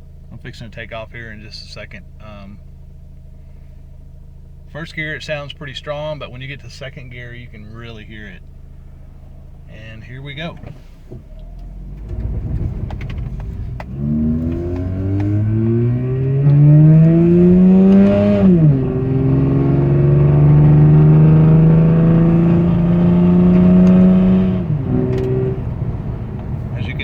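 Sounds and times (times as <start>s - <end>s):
engine fluttering noise: 11.2s - 27.0s
rotary engine accelerating: 11.2s - 27.0s.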